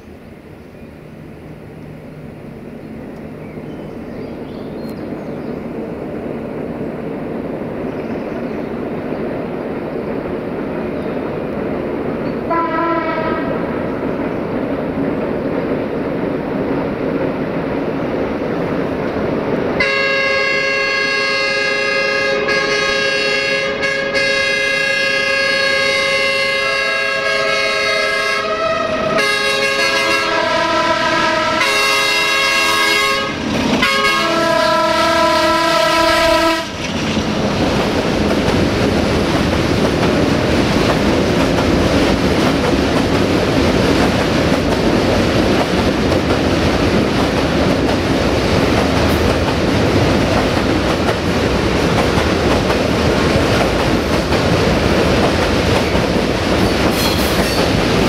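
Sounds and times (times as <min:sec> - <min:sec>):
train horn chord: 0:12.5 - 0:13.8, 0:19.8 - 0:36.8
train wheels clacking on rail joints: 0:36.6 - 0:58.0.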